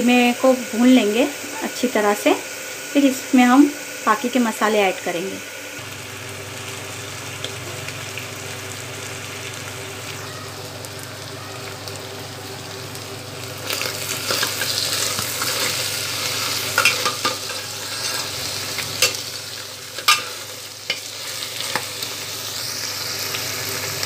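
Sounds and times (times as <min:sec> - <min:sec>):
meat and onions sizzling in oil: 0:00.0 - 0:24.0.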